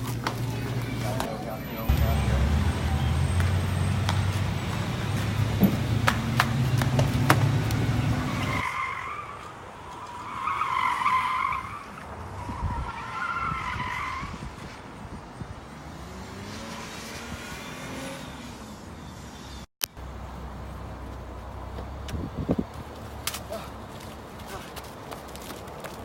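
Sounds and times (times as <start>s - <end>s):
tires squealing: 0.0s - 15.0s.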